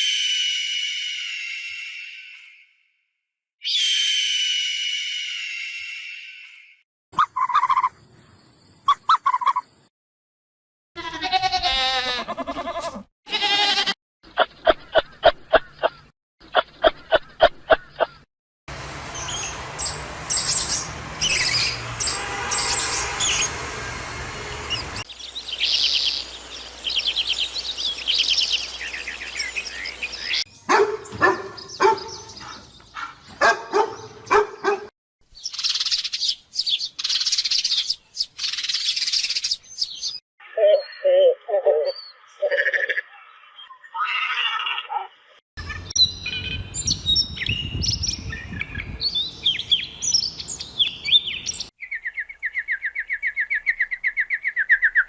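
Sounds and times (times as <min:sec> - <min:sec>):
bird chirps and calls: 0:19.2 - 0:23.5, 0:24.7 - 0:44.9, 0:45.6 - 0:55.0.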